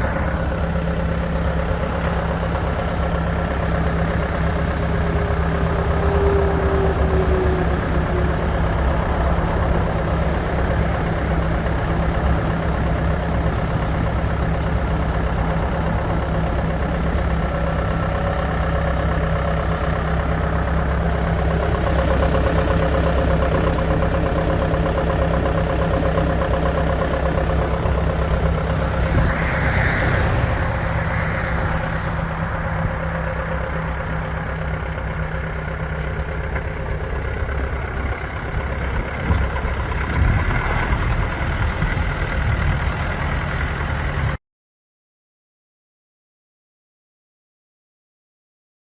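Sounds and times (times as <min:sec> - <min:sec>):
tractor diesel engine running: 0:00.0 - 0:44.4
brief hissing rush: 0:28.8 - 0:33.8.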